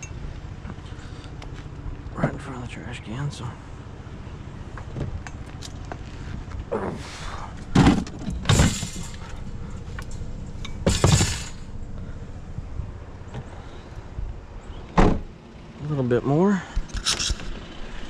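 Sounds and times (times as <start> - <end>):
bicycle rattling and clanking: 7.6 - 11.9.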